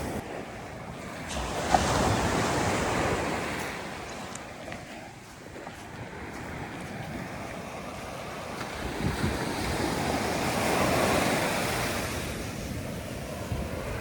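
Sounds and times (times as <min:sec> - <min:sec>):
sea surf washing onto beach: 0:00.0 - 0:14.0
wind buffeting microphone: 0:00.0 - 0:14.0.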